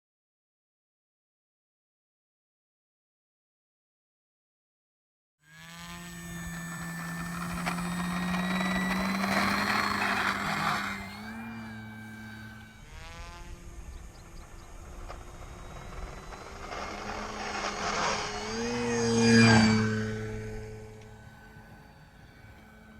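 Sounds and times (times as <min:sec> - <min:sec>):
model plane motor whine: 0:05.4 - 0:22.9.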